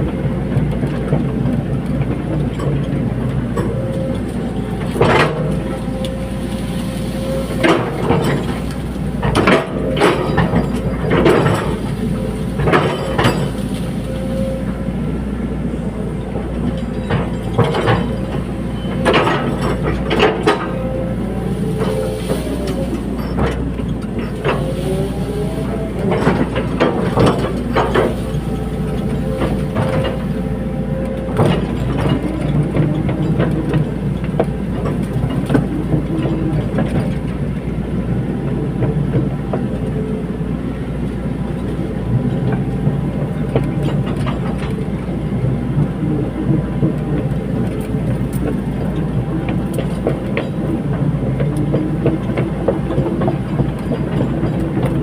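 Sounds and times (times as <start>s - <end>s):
diesel engine running: 0.0s - 55.0s
hydraulic whine: 2.0s - 55.0s.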